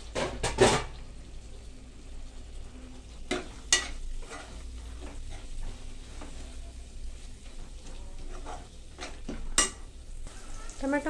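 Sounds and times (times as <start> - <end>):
food frying in oil: 0.0 - 11.0
spoon scraping pot: 3.2 - 10.8
spoon clinking against pot: 9.0 - 9.9.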